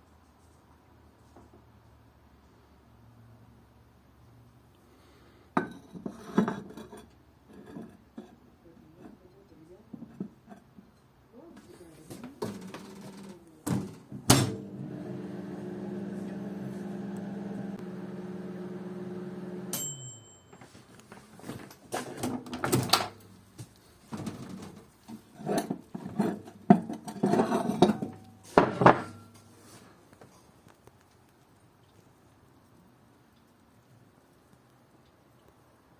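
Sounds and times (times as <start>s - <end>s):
microwave humming: 13.8s - 20.3s
microwave beep: 14.8s - 20.7s
door and dishes clattering: 26.7s - 29.4s.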